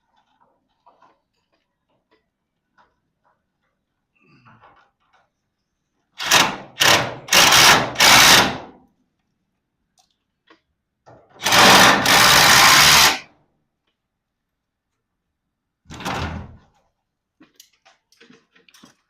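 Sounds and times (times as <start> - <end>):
power driver running: 11.4 - 13.2.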